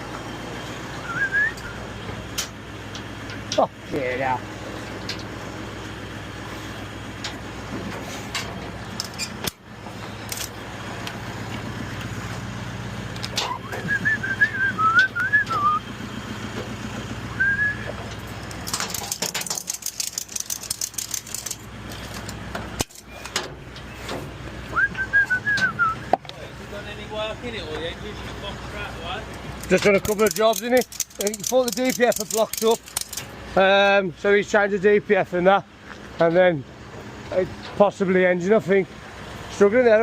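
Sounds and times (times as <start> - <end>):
vehicle engine running: 0.0 - 40.0
whistled tune: 1.0 - 1.8, 13.5 - 15.9, 17.3 - 17.9, 24.7 - 26.1.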